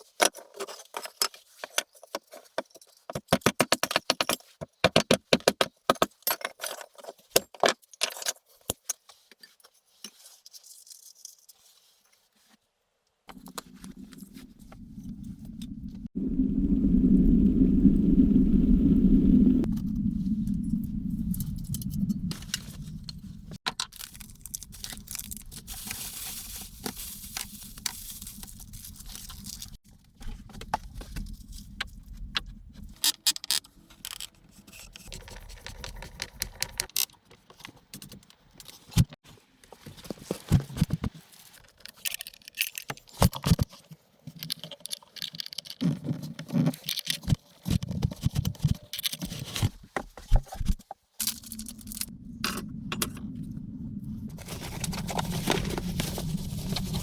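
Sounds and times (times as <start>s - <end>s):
handling clicks knocks and scrapes: 0.0s - 12.6s, 26.8s - 53.3s
low rumble: 13.3s - 33.0s, 51.2s - 57.0s.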